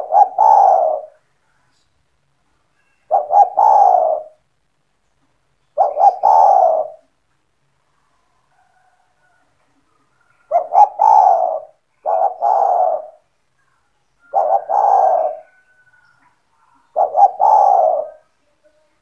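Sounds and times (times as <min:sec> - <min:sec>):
dove cooing: 0:00.0 - 0:01.2, 0:03.1 - 0:04.4, 0:05.8 - 0:07.1, 0:10.2 - 0:13.3, 0:14.2 - 0:15.8, 0:16.6 - 0:18.3.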